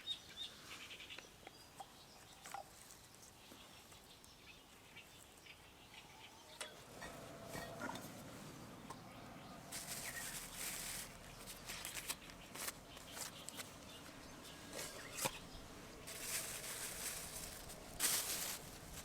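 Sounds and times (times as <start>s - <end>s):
rustling: 9.7s - 19.0s.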